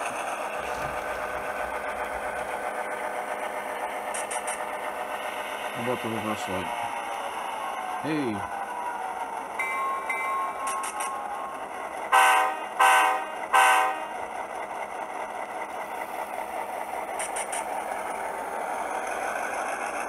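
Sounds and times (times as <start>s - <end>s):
recorded diesel engine sound: 0.0s - 20.0s
model train air horn: 12.1s - 14.2s.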